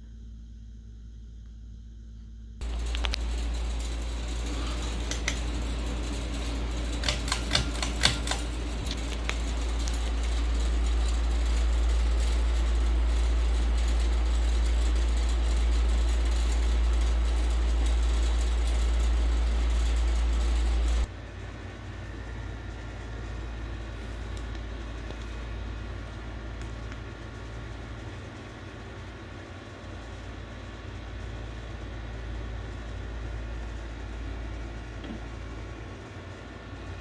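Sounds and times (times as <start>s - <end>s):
ceiling fan low rumble: 0.1s - 37.0s
sharp clicks: 2.6s - 10.7s.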